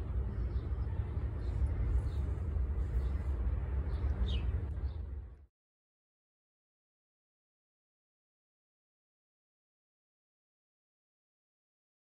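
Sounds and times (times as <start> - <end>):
low rumble on microphone: 0.0 - 5.5.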